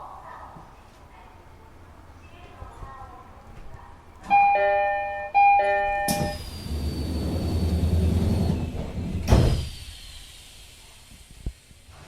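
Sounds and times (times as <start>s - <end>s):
two-note door chime: 4.3s - 6.5s
pneumatic doors hissing shut: 6.1s - 12.0s.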